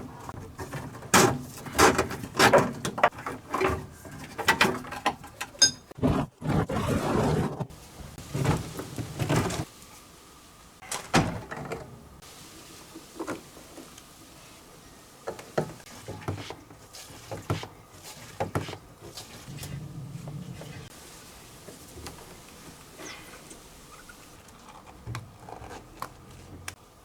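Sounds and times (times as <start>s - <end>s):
scraping or rustling: 0.0s - 10.1s.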